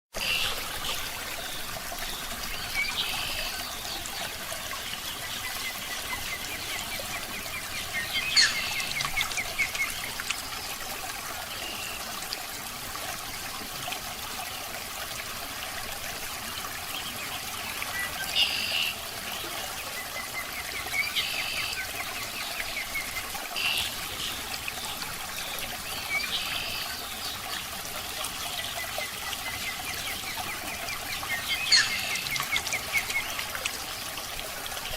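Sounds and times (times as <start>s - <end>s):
aquarium water trickling: 0.2s - 34.9s.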